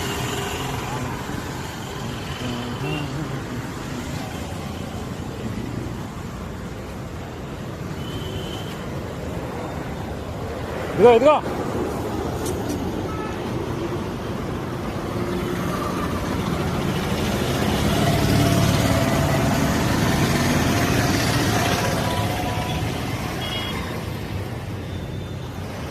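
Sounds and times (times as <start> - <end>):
vehicle passing on road: 13.9 - 23.4.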